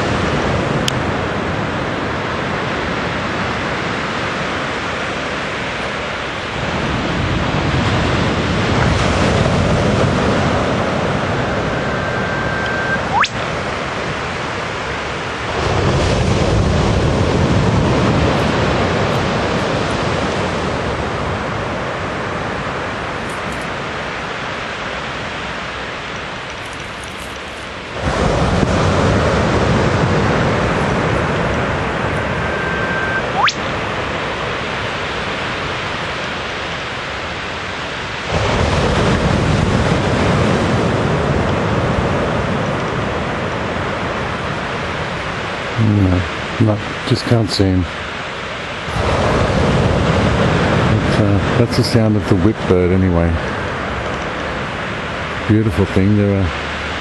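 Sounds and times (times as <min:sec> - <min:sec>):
wind buffeting microphone: 0:00.0 - 0:14.4, 0:27.9 - 0:34.6, 0:48.8 - 0:51.8
rushing background noise: 0:00.0 - 0:57.0
bird whistle and whip-crack call: 0:12.3 - 0:13.4, 0:32.5 - 0:33.6.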